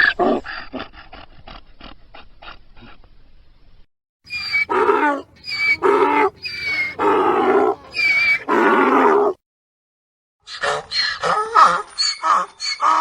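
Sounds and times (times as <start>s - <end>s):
donkey braying: 4.3s - 9.4s.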